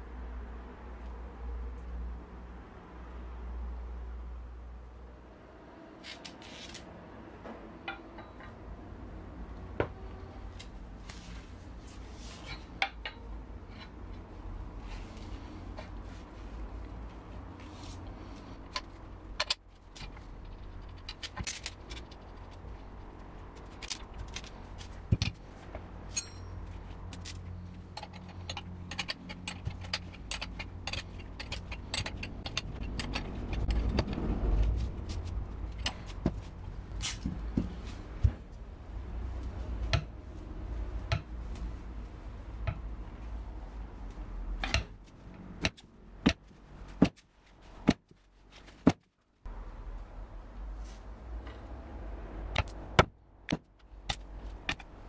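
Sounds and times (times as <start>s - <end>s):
metal clicks and clinks: 26.1s - 34.3s.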